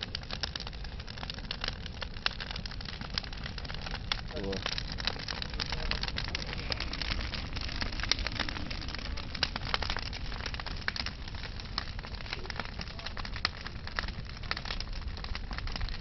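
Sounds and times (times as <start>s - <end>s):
logs crackling and popping: 0.0s - 16.0s
low rumble of flame: 0.0s - 16.0s.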